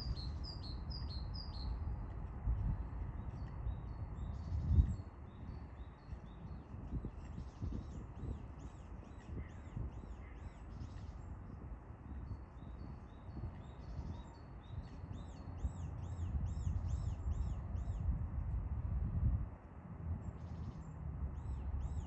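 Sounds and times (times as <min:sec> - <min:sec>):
steady low rumble: 0:16.2 - 0:22.0.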